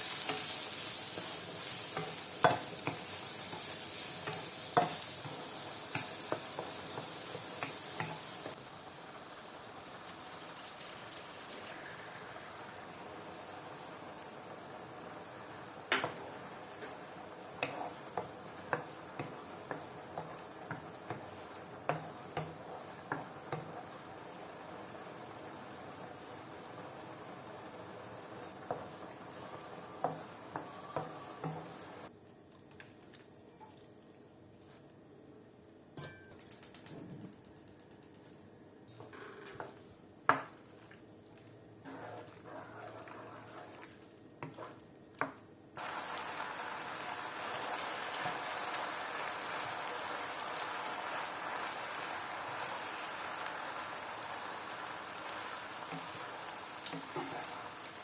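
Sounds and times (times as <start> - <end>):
faint hiss: 7.2 - 17.3.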